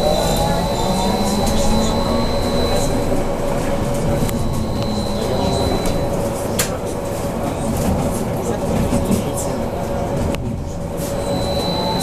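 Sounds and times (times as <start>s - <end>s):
faint high whine: 0.0s - 6.4s, 11.2s - 12.0s
trolleybus interior rumble: 0.0s - 12.0s.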